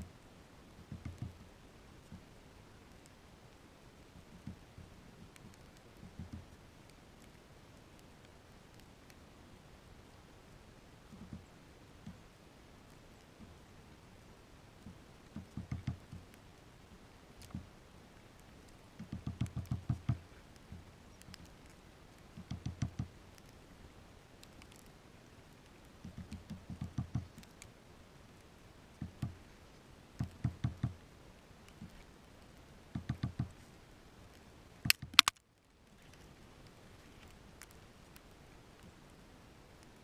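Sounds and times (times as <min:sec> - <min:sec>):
bird pecking at feeder: 0:00.8 - 0:01.5, 0:04.2 - 0:09.2, 0:14.9 - 0:16.5, 0:17.4 - 0:23.6, 0:25.6 - 0:27.7, 0:28.9 - 0:29.5, 0:30.2 - 0:31.0, 0:31.7 - 0:35.4
sharp clicking: 0:22.4 - 0:23.6, 0:34.8 - 0:35.4.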